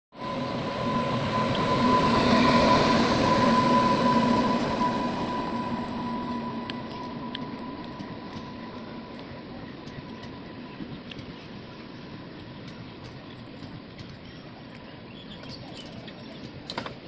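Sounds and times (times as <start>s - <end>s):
steady high-pitched whine: 0.1s - 17.0s
train wheels on rails: 0.1s - 17.0s.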